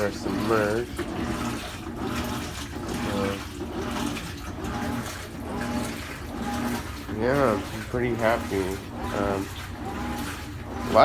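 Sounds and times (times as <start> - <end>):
washing machine filling with water: 0.0 - 11.0.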